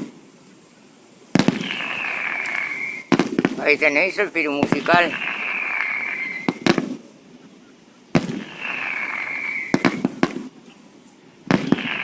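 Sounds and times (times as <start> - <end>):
fireworks bangs: 1.3 - 7.2, 8.1 - 10.7, 11.4 - 12.0
firework whistle: 1.4 - 3.8, 4.5 - 7.0, 8.1 - 10.5, 11.5 - 12.0.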